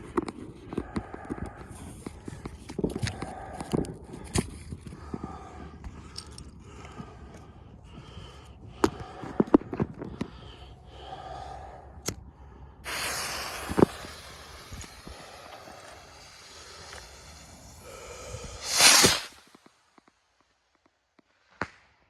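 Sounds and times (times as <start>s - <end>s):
firework bang: 12.9s - 17.9s, 18.5s - 19.5s
firework hissing rush: 12.9s - 19.6s
firework crackling: 12.9s - 20.0s
firework crack: 12.9s - 20.6s.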